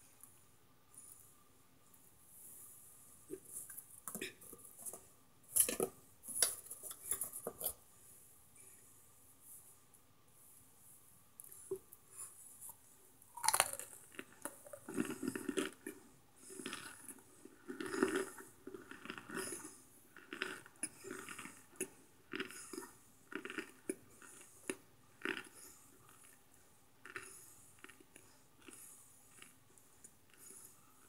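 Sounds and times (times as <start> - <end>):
crunchy food being chewed: 11.4 - 31.0.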